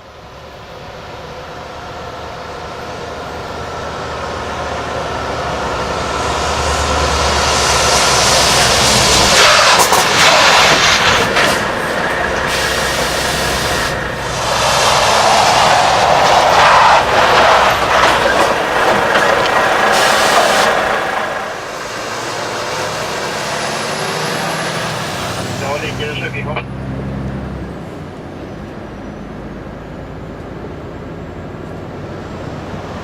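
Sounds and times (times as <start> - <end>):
heavy truck driving: 0.0 - 33.0
tyre and air-brake noise: 8.6 - 21.3.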